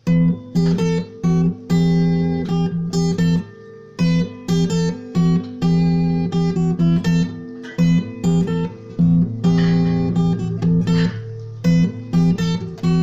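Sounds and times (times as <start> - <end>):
acoustic guitar tune: 0.0 - 13.0.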